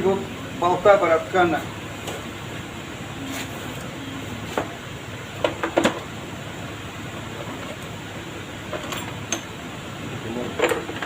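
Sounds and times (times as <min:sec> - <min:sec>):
steady low hum: 0:00.0 - 0:11.0
metal tools knocking and clicking: 0:08.7 - 0:09.5, 0:10.5 - 0:11.0.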